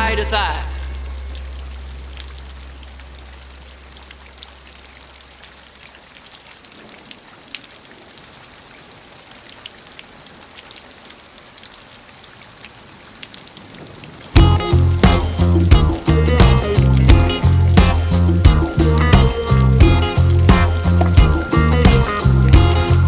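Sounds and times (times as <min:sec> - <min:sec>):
loud blues music: 0:00.0 - 0:01.0, 0:14.4 - 0:23.0
song: 0:00.0 - 0:02.8, 0:14.4 - 0:23.0
steady rain: 0:00.0 - 0:23.0
rain drop taps: 0:13.8 - 0:23.0.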